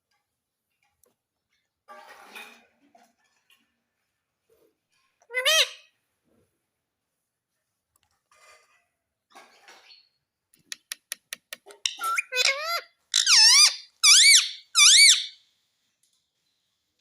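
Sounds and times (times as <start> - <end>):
parrot shrill calls: 11.9 - 15.4.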